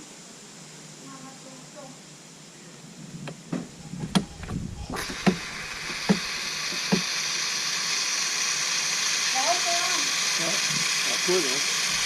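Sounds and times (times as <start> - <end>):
sharp knocks and clicks: 3.3 - 7.1
hose water spraying with a hiss: 4.1 - 12.0.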